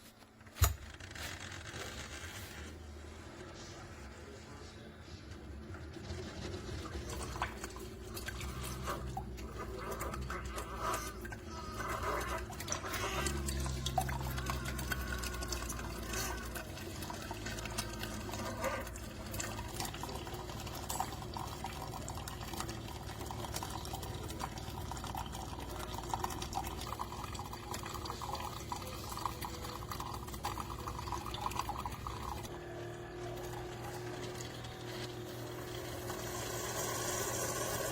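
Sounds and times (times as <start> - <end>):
coffee maker humming: 5.4 - 37.9
liquid dripping into a cup: 7.2 - 32.5.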